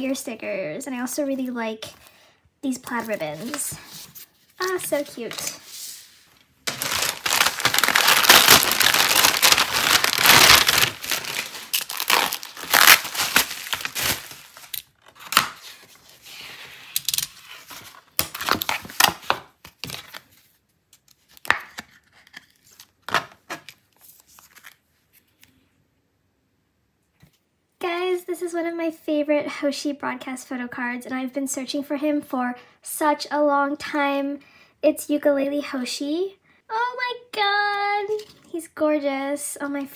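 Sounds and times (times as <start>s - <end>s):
cardboard rustling: 2.9s - 16.3s
packaging tearing and crinkling: 6.7s - 15.9s, 17.0s - 20.3s.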